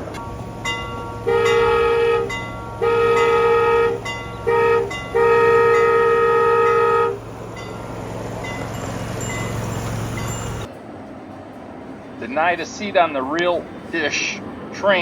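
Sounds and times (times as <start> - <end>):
miniature train horn blasts: 1.1 - 7.2.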